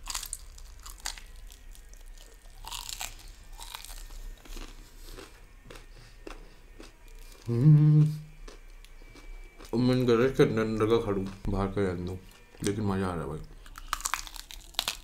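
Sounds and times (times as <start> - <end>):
crunchy chewing: 0.0 - 10.1, 13.6 - 15.0.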